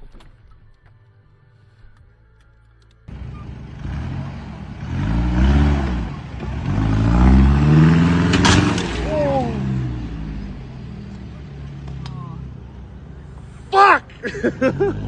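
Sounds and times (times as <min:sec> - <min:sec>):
engine revving: 0:03.1 - 0:15.0.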